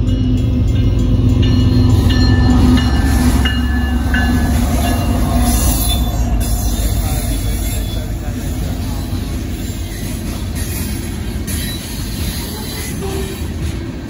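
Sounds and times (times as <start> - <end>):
crossing signal bell dinging: 0.0 - 10.0
diesel locomotive engine rumble: 0.0 - 14.0.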